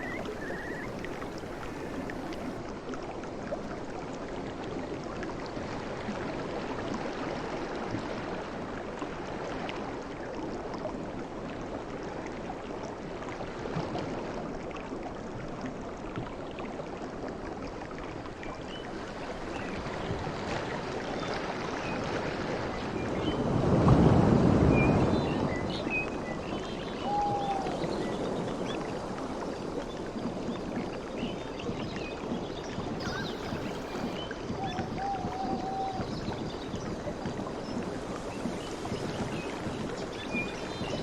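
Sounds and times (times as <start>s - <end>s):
surf washing on shore: 0.0s - 2.6s, 18.9s - 26.5s, 32.9s - 41.0s.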